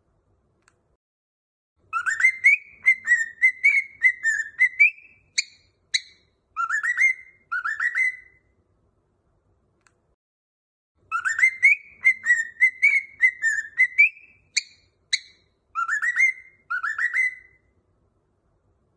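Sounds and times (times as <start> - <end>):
cockatiel whistling: 1.9 - 8.5, 11.1 - 17.7.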